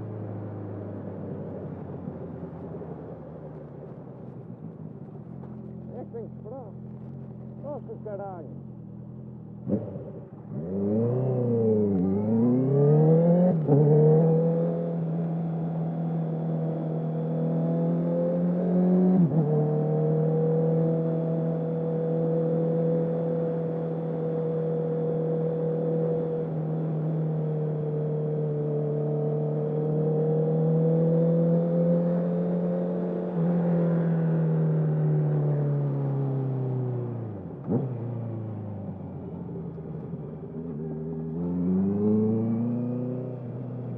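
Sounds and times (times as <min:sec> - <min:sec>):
motorcycle engine revving: 0:05.9 - 0:15.2, 0:28.3 - 0:43.9.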